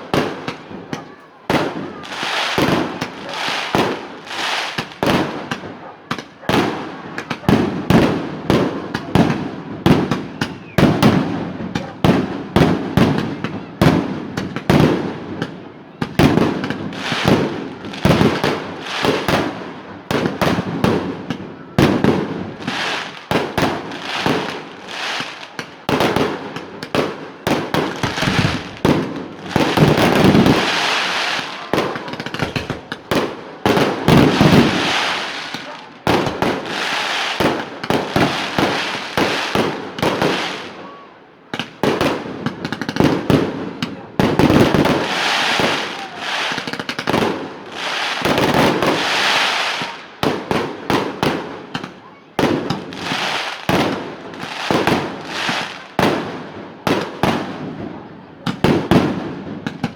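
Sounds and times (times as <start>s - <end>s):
fireworks exploding: 0.0s - 59.9s.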